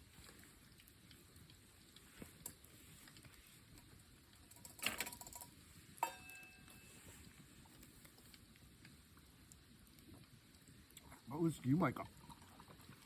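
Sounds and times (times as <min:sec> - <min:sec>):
small clicks and knocks: 0:02.2 - 0:06.4
sharp ringing clink: 0:06.0 - 0:06.7.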